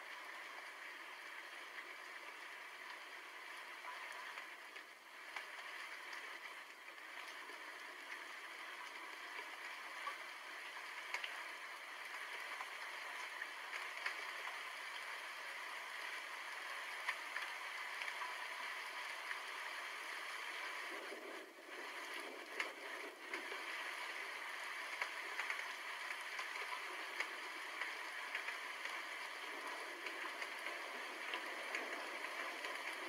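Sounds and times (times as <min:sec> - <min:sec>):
steady rain: 0:00.0 - 0:33.0
sharp raindrop ticks: 0:00.1 - 0:33.0.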